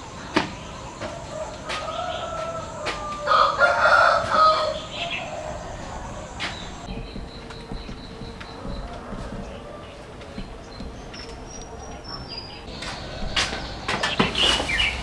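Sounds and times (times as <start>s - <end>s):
rooster crowing: 1.3s - 5.9s.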